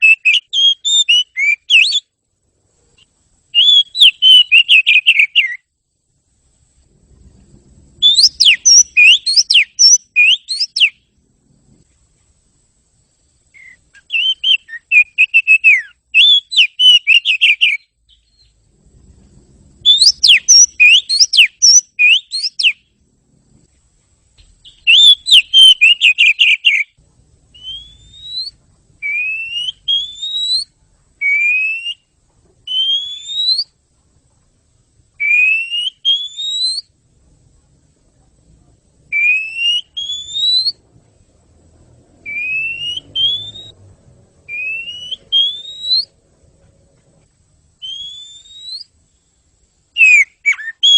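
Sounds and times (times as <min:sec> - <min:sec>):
bird rising whistles: 0:00.0 - 0:02.1, 0:03.6 - 0:05.7, 0:08.0 - 0:11.0, 0:13.6 - 0:18.6, 0:19.8 - 0:22.8, 0:24.6 - 0:32.1, 0:32.7 - 0:33.8, 0:35.2 - 0:36.9, 0:39.1 - 0:40.8, 0:42.2 - 0:43.8, 0:44.5 - 0:46.2, 0:47.8 - 0:49.0, 0:50.0 - 0:50.9
songbird chirping: 0:00.0 - 0:50.9.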